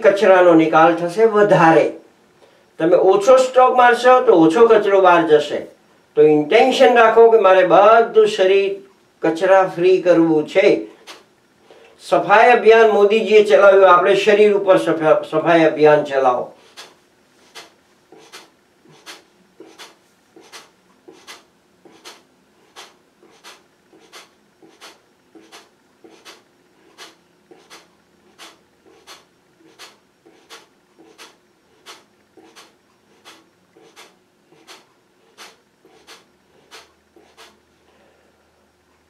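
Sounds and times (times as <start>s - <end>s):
forceful nasal exhalations: 10.8s - 12.0s, 16.5s - 38.6s.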